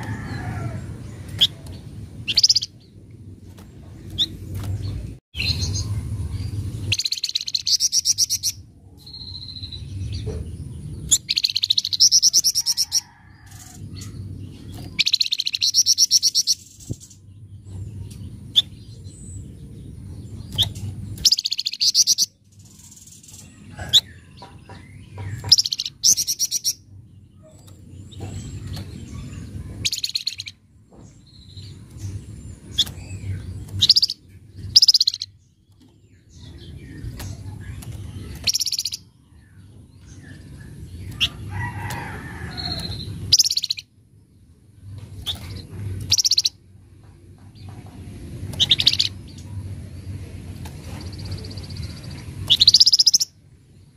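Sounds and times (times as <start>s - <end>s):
low rumble: 0.0s - 7.0s
bird harsh chattering calls: 2.2s - 2.8s, 11.0s - 17.2s, 20.6s - 30.6s, 32.6s - 35.4s, 36.4s - 39.1s, 40.2s - 43.9s, 45.2s - 46.6s, 48.6s - 49.3s, 51.0s - 53.3s.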